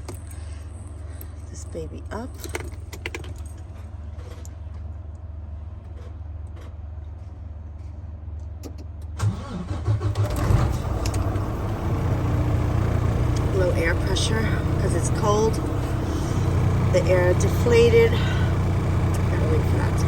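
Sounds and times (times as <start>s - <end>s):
diesel engine starting and idling: 8.6s - 20.0s
steady low hum: 10.5s - 20.0s.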